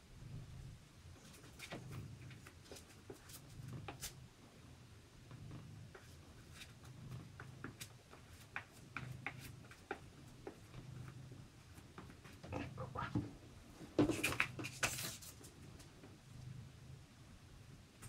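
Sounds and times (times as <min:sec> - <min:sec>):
soft low hum: 0:00.0 - 0:14.0
paintbrush scraping on card: 0:14.1 - 0:15.4.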